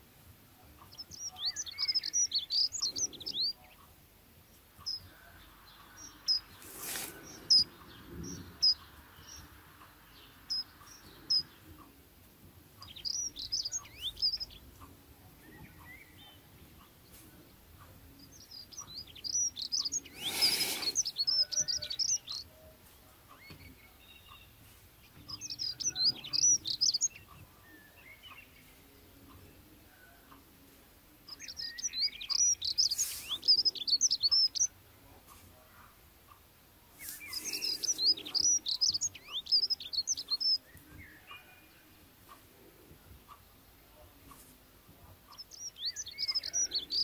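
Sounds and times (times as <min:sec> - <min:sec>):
small birds chirping: 0:00.0 - 0:47.0
brief rustling: 0:06.6 - 0:07.3.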